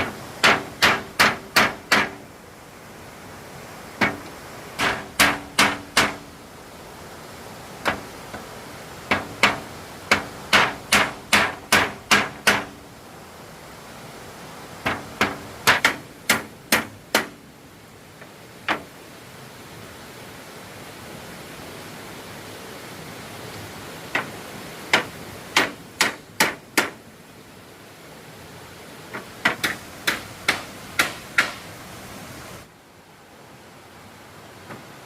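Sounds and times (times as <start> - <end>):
hammer striking wood: 0.4 - 2.2, 4.0 - 6.3, 9.1 - 12.8, 14.8 - 17.4, 24.9 - 27.0, 29.2 - 31.6.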